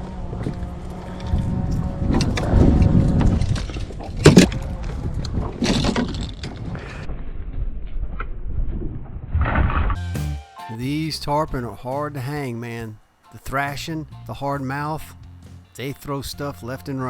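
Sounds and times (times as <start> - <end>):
steady low rumble: 0.0 - 10.1.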